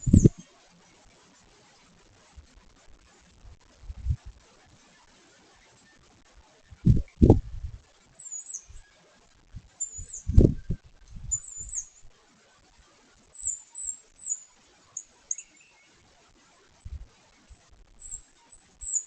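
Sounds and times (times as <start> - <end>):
high-pitched bird chirps: 0.0 - 0.4, 8.2 - 8.8, 9.8 - 12.1, 13.4 - 16.0, 18.0 - 19.0.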